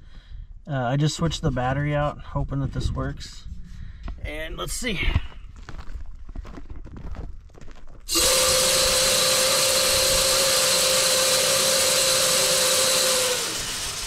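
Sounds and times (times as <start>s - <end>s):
electric motor whining: 8.1s - 14.0s.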